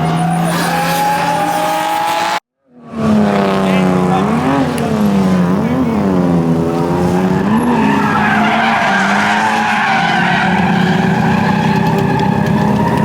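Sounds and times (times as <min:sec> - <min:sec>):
car engine revving: 0:00.0 - 0:13.0
tyres skidding and squealing: 0:00.0 - 0:13.0.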